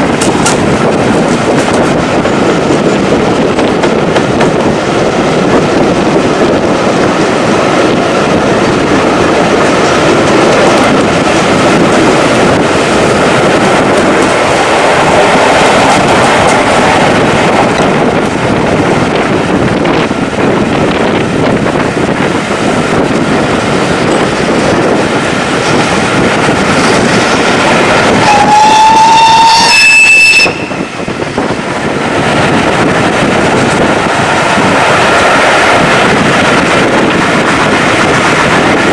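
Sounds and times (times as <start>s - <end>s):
train running: 0.0s - 38.9s
locomotive whistle: 28.2s - 31.0s.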